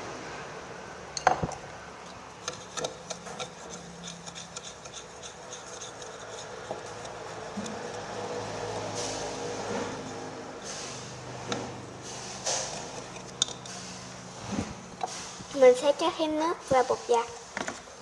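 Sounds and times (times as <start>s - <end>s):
utensil scraping a container: 2.4s - 15.5s.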